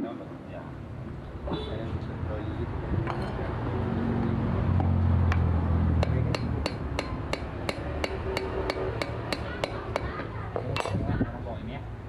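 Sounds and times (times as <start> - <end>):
hammer strikes: 4.8 - 11.0.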